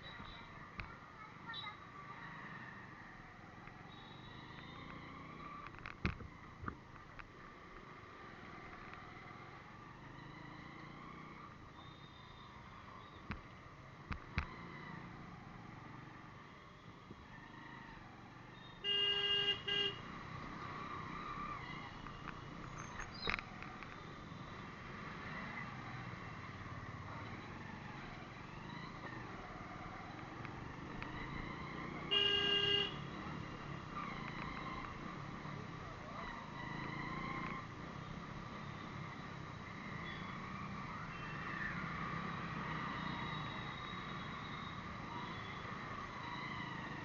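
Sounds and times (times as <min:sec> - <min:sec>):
road traffic: 0:00.0 - 0:47.0
vehicle horn honking: 0:18.8 - 0:20.0, 0:32.1 - 0:33.1.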